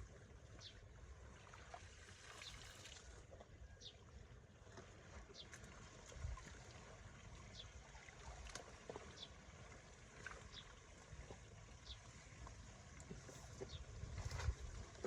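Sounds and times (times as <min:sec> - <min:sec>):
faint water flowing: 0:00.0 - 0:15.0
wind rumble on microphone: 0:13.0 - 0:15.0.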